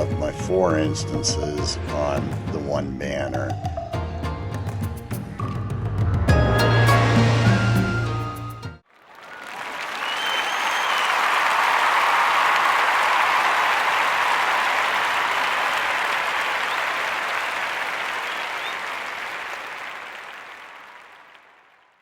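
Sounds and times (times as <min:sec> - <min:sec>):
whistle: 0:06.3 - 0:11.2, 0:18.2 - 0:19.0
crowd applauding: 0:06.9 - 0:22.0.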